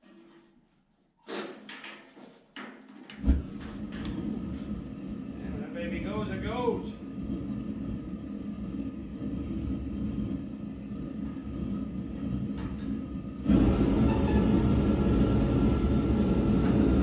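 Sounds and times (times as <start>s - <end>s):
tractor diesel engine rumbling: 3.4s - 17.0s.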